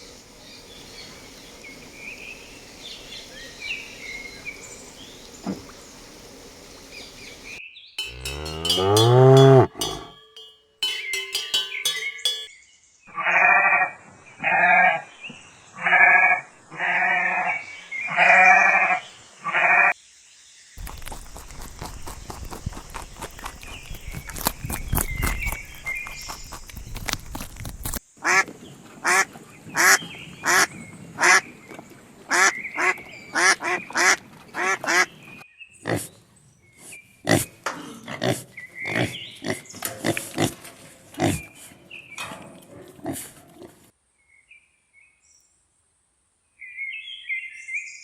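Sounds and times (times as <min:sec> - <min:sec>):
chirps: 0:06.6 - 0:12.5
repeated animal calls: 0:08.0 - 0:12.5.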